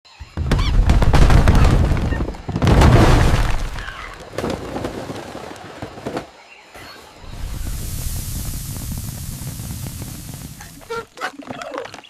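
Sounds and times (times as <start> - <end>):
loud booming crashes with clattering: 0.4 - 3.8.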